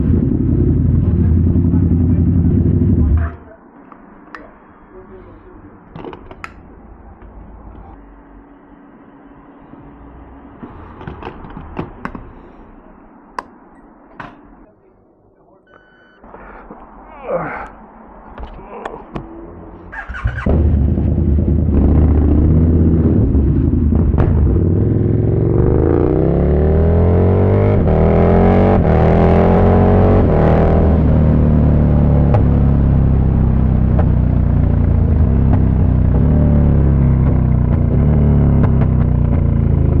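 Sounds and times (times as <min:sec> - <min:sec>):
motorcycle engine running loud: 0:00.0 - 0:03.4, 0:20.1 - 0:40.0.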